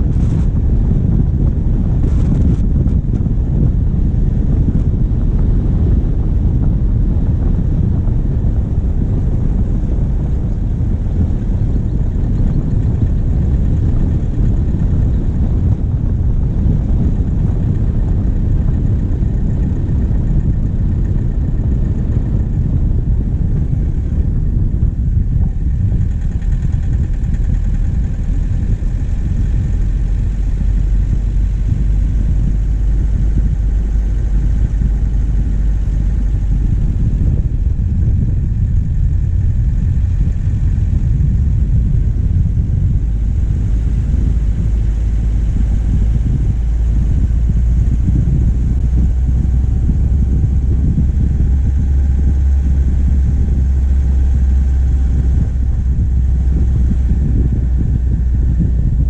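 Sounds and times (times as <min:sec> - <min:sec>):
deep steady hum: 0:00.0 - 0:59.0
diesel engine rumble: 0:00.0 - 0:59.0.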